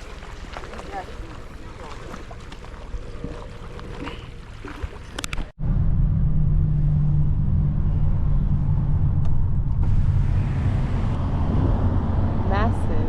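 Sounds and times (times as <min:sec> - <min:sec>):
car road rumble from inside: 0:05.6 - 0:13.0.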